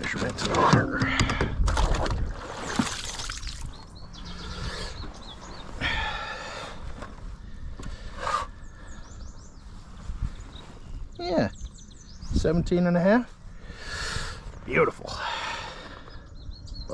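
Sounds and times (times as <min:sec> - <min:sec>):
knocks and rattles handling fish: 0:00.0 - 0:03.2
birds calling: 0:02.3 - 0:16.9.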